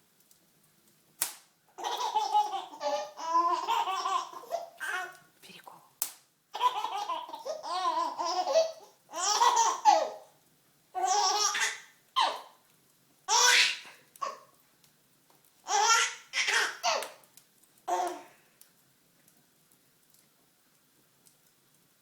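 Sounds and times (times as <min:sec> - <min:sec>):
baby laughing: 0:01.8 - 0:05.1, 0:06.5 - 0:10.2, 0:11.0 - 0:12.4, 0:15.7 - 0:17.2.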